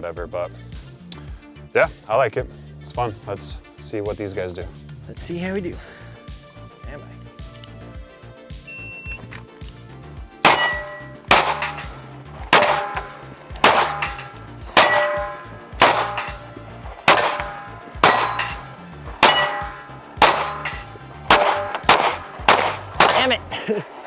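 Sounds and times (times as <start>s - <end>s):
pistol shots: 10.4s - 23.5s
steel target plate ringing: 10.5s - 23.5s.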